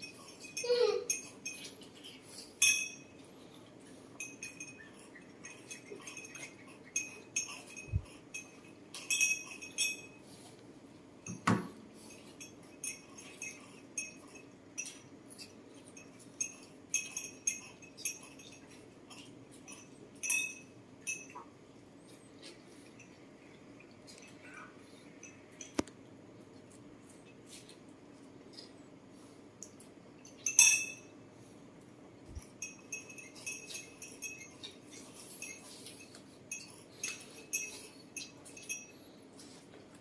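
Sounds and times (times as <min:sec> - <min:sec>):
tableware clinking: 0:00.0 - 0:03.3, 0:04.1 - 0:10.4, 0:11.2 - 0:21.5, 0:30.2 - 0:31.2, 0:32.3 - 0:39.6.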